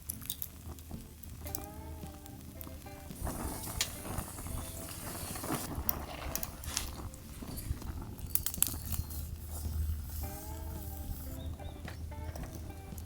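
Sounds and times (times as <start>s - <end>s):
quiet background music: 0.0s - 13.0s
objects clicking and scraping: 3.2s - 13.0s.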